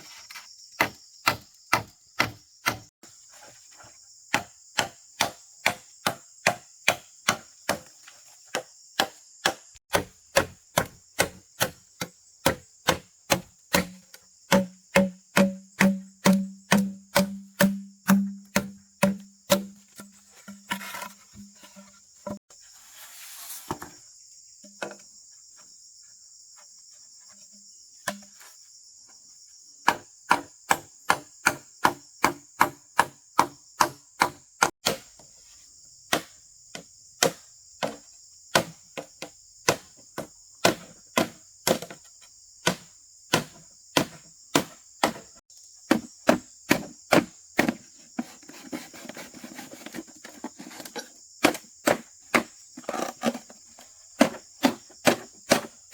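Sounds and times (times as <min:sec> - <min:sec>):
crickets chirping: 0:00.0 - 0:55.9
tool striking wood: 0:00.8 - 0:02.9, 0:04.3 - 0:07.9, 0:08.5 - 0:20.8, 0:29.9 - 0:35.1, 0:42.6 - 0:45.2, 0:54.2 - 0:55.7.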